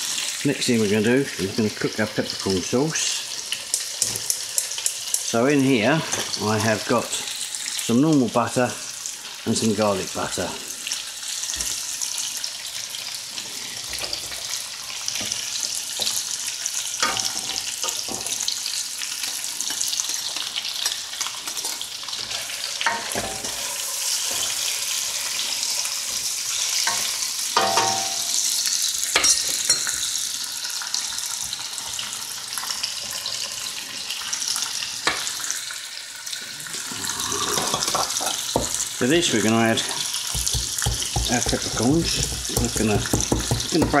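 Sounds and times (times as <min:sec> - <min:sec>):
fat sizzling in a pan: 0:00.0 - 0:44.0
utensil knocking on pan: 0:27.6 - 0:28.3, 0:40.3 - 0:44.0.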